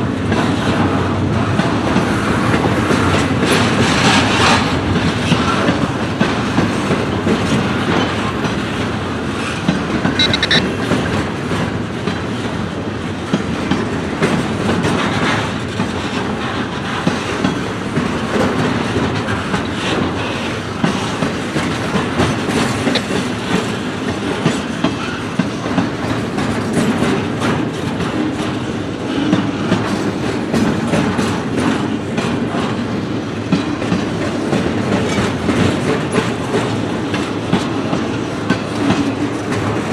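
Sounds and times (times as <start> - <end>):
train wheels clacking on rails: 0.0 - 39.9
high squeal: 10.2 - 10.8.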